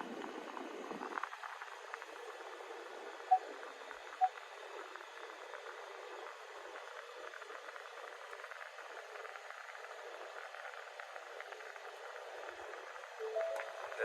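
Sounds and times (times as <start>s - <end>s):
parking sensor beeps: 13.2s - 14.0s.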